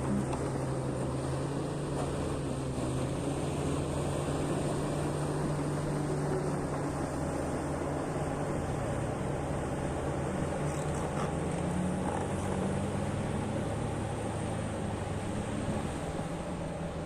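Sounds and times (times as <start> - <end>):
heavy diesel machine engine drone: 0.0 - 17.0.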